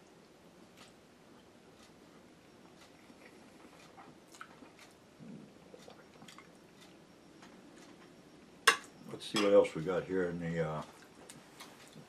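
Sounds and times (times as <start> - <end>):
person chewing food: 0.6 - 8.1, 10.8 - 12.0.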